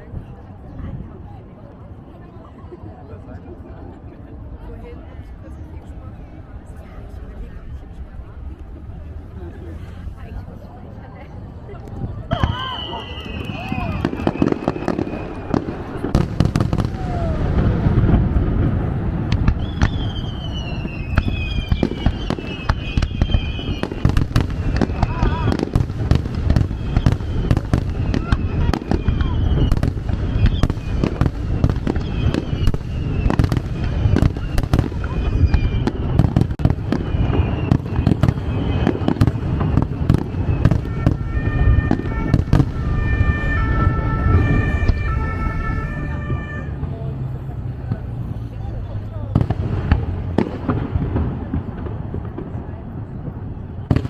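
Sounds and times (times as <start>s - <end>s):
fireworks bangs and crackles: 2.9s - 54.0s
falling firework whistle: 12.3s - 18.2s, 19.3s - 46.8s
low rumble of bursts: 13.2s - 53.9s
deep rumble: 15.1s - 22.0s.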